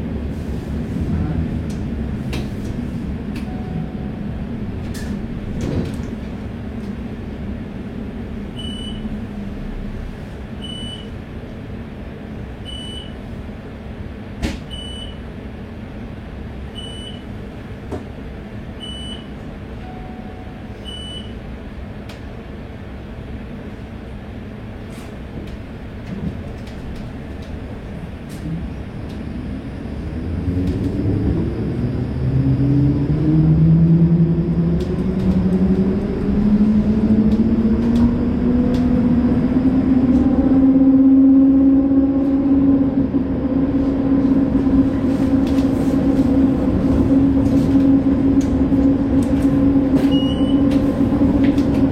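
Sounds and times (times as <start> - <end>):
tram low rumble: 0.0 - 51.9.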